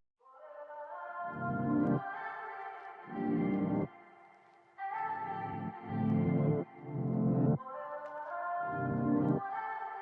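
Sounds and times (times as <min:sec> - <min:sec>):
slow sustained instrumental chords: 0:05.3 - 0:07.6.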